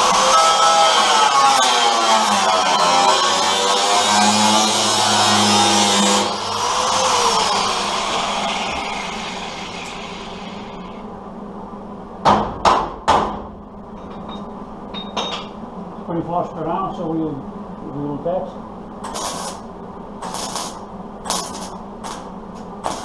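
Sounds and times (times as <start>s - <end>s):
loud power tool running: 0.0s - 11.0s, 20.2s - 23.0s.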